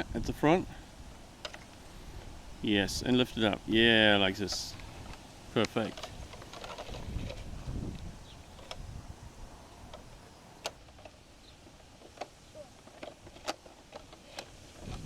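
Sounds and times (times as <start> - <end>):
wind rumble on microphone: 0.0 - 1.2, 6.1 - 10.3, 14.6 - 15.0
plastic toy clicks and knocks: 4.5 - 8.0, 12.0 - 15.0.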